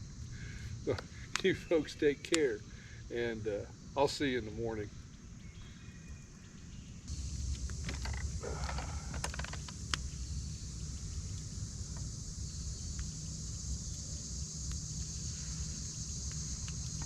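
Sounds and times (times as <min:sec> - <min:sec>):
insect chorus: 0:00.0 - 0:17.0
campfire crackling and popping: 0:07.1 - 0:17.0.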